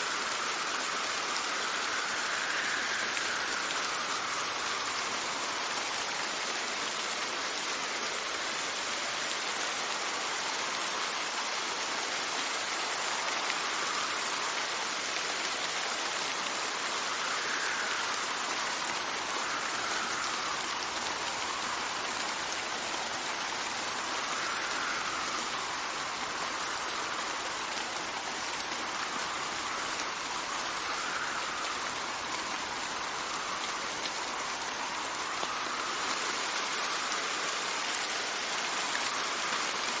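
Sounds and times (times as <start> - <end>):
faint wind whistle: 0.0 - 6.2, 13.1 - 39.9
steady rain hiss: 0.0 - 40.0.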